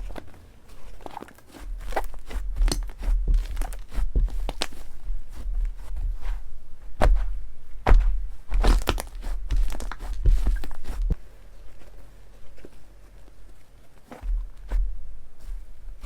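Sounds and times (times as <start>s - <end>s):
wet pops and crackles: 8.6s - 11.2s.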